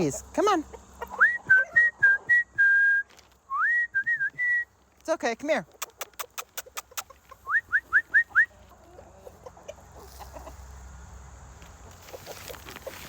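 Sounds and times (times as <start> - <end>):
chickens clucking softly: 0.4 - 2.4, 5.6 - 13.0
short rising whistles: 1.2 - 4.8.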